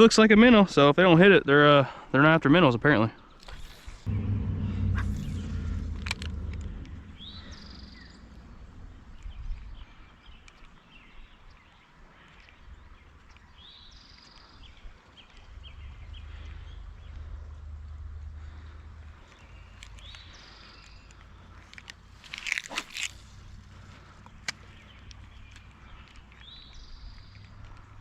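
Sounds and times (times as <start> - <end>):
low outdoor rumble: 3.6 - 10.1.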